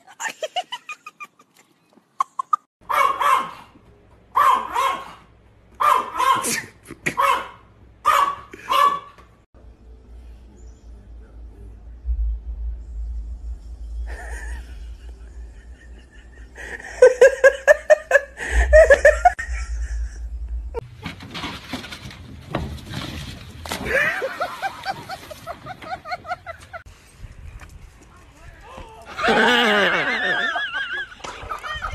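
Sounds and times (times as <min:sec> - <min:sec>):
person laughing hard: 0:14.1 - 0:20.3, 0:23.8 - 0:26.8, 0:29.1 - 0:31.9.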